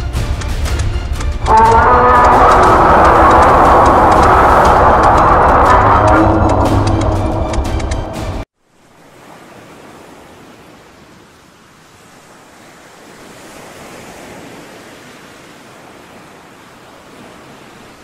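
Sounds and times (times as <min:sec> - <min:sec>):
loud sound cut off: 0:01.4 - 0:08.4
even rushing ambient noise: 0:01.5 - 0:08.4.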